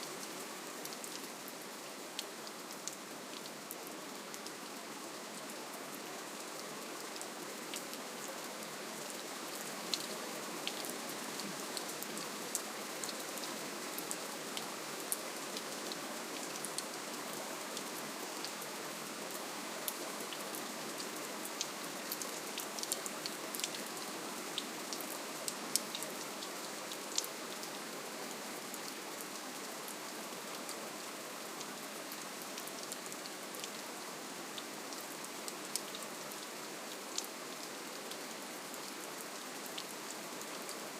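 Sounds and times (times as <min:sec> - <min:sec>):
raindrops ticking on a surface: 0:00.2 - 0:08.6, 0:19.3 - 0:27.9, 0:34.5 - 0:39.0.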